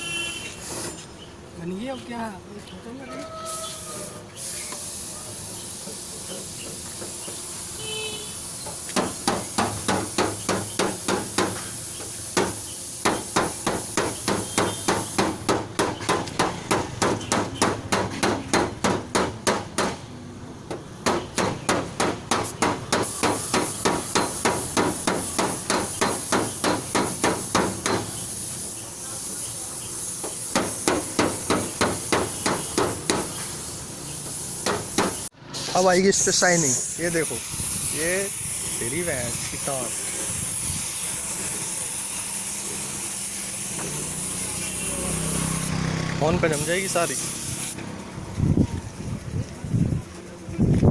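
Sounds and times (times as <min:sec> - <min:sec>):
hammering on sheet metal: 0:08.8 - 0:20.1, 0:20.7 - 0:28.2, 0:30.5 - 0:33.4, 0:34.6 - 0:35.3.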